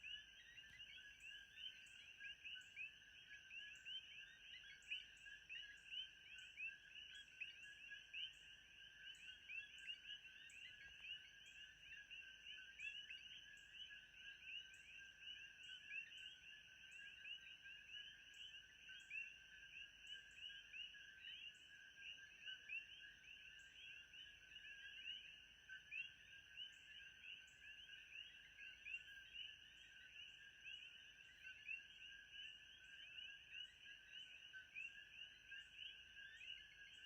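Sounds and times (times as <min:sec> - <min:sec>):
frog chorus chirping: 0:00.0 - 0:37.0.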